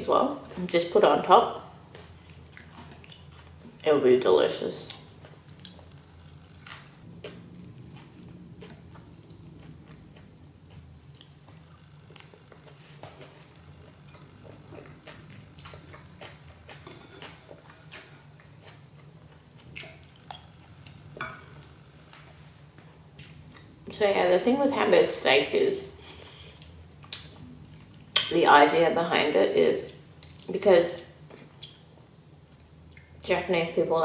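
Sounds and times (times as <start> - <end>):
low steady hum: 0.0 - 34.0
close chewing: 1.9 - 3.9, 4.8 - 23.7.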